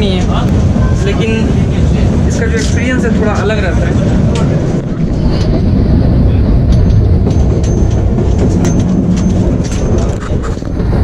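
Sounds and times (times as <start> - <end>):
train wheels rumbling: 0.0 - 11.0
clicks and rattles: 6.6 - 11.0.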